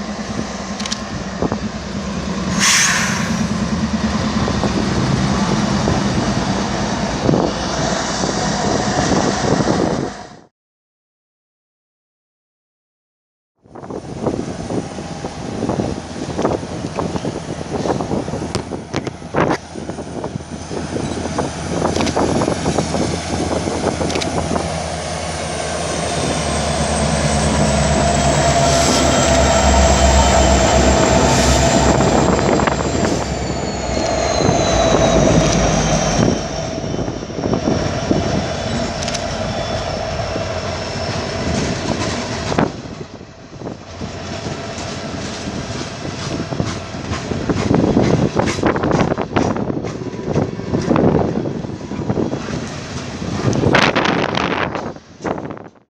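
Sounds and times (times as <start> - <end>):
locomotive engine drone: 0.0 - 10.4, 13.8 - 55.4
high wheel squeal: 2.5 - 3.8, 26.0 - 42.2
train wheels clicking on rails: 20.7 - 25.4, 37.7 - 55.8.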